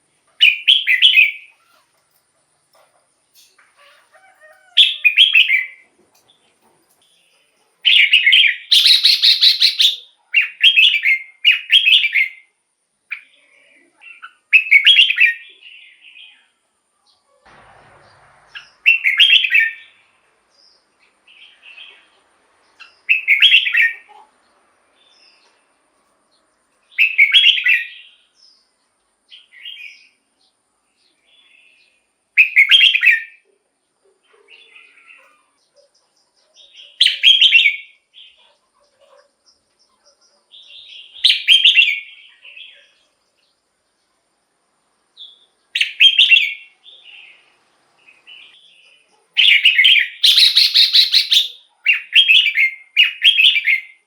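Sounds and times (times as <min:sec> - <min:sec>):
soft bird chirps: 0:00.0 - 0:17.4, 0:18.1 - 0:44.5, 0:45.1 - 0:54.0
bird singing bubbling phrases: 0:07.8 - 0:12.4, 0:49.4 - 0:54.0.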